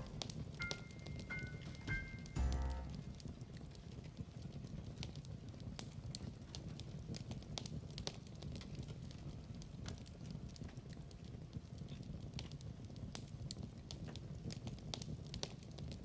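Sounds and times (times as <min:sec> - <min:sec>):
fire pops and snaps: 0:00.0 - 0:16.0
log fire crackling: 0:00.0 - 0:16.0
musical chord: 0:00.6 - 0:03.0.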